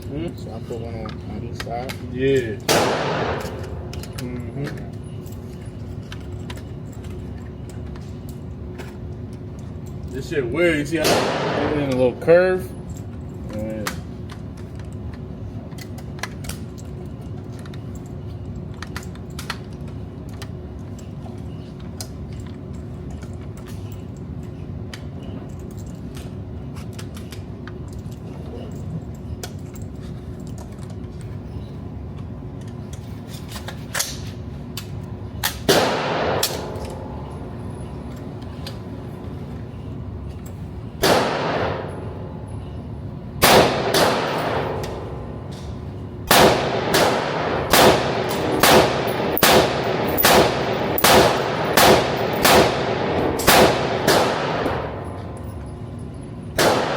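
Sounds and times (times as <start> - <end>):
steady background hum: 0.0 - 56.9
loud echoing gunshots: 2.7 - 3.9, 11.0 - 11.9, 35.7 - 37.2, 41.0 - 42.1, 43.4 - 45.1, 46.3 - 55.0, 56.6 - 56.9.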